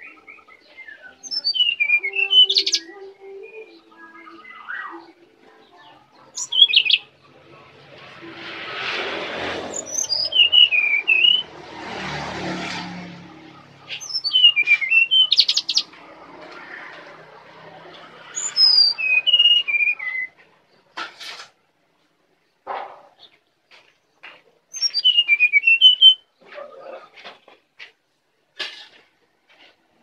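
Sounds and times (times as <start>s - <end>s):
bird whistled song: 0.0s - 5.2s, 6.3s - 7.1s, 9.7s - 11.5s, 13.9s - 15.9s, 18.4s - 20.4s, 24.7s - 26.3s.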